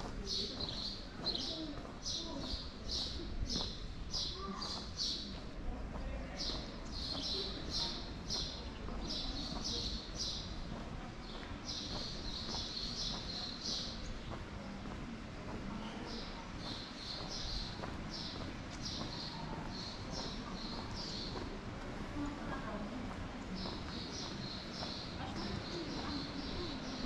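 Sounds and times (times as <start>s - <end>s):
small birds chirping: 0.0s - 14.9s, 15.7s - 27.0s.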